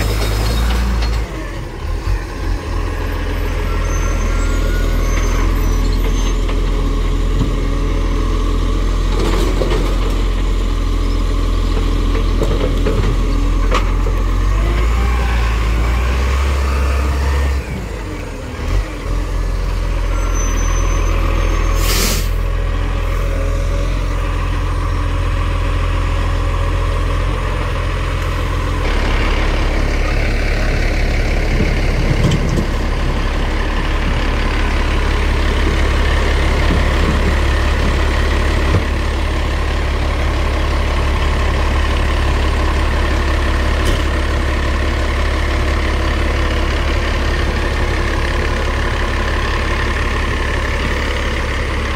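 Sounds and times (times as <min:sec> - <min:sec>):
diesel engine running: 0:00.0 - 0:51.9
air brakes hissing: 0:21.6 - 0:22.5.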